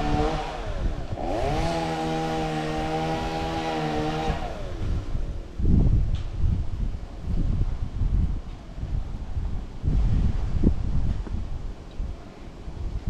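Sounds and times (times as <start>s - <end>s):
chainsaw engine whining: 0.0s - 5.2s.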